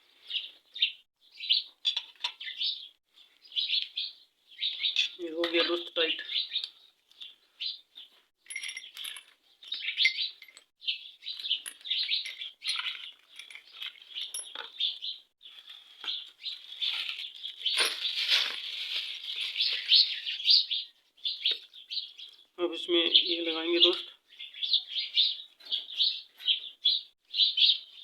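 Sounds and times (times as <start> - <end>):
small birds chirping: 0.0 - 28.0
metallic clinks of tools: 8.4 - 10.7, 11.4 - 14.7.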